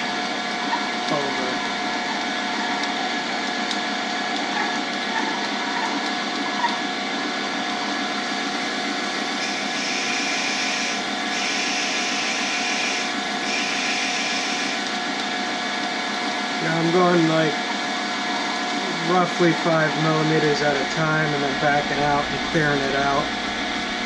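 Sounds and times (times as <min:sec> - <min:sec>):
lathe spindle whine: 0:00.0 - 0:24.0
drill bit cutting hiss: 0:09.3 - 0:15.0.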